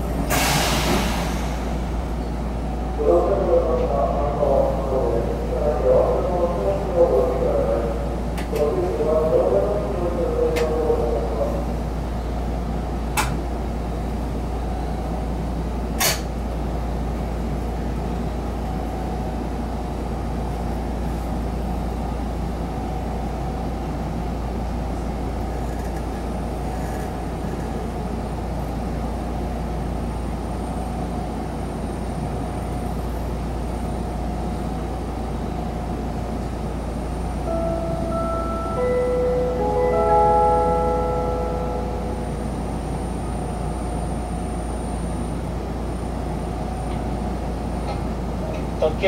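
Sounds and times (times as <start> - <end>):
train wheels rumbling on rails: 0.0 - 2.9, 23.3 - 30.0.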